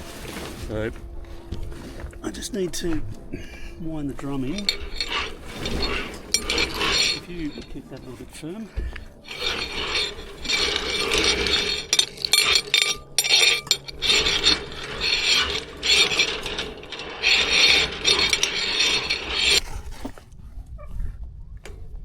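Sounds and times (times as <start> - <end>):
furler drum ratcheting: 4.5 - 8.1, 9.3 - 19.6.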